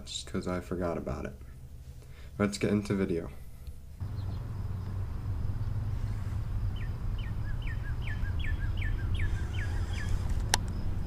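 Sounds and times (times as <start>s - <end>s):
steady low rumble: 2.6s - 11.0s
songbird singing: 4.0s - 11.0s.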